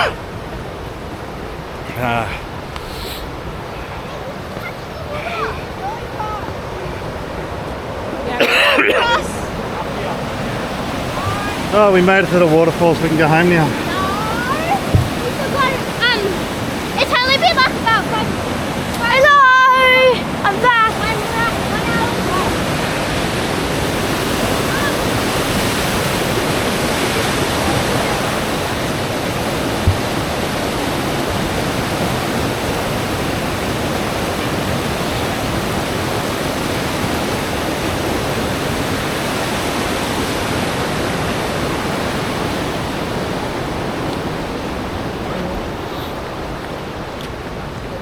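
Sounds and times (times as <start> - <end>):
waterfall rushing: 0.0 - 48.0
brief knock: 14.9 - 15.2.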